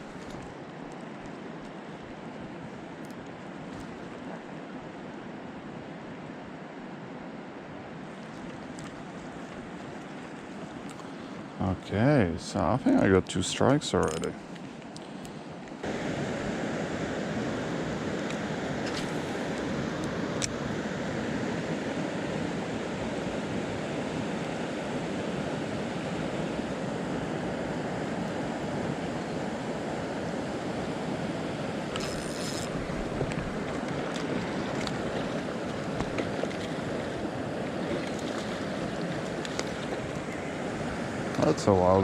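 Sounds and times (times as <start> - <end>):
water rushing: 30.8 - 42.0.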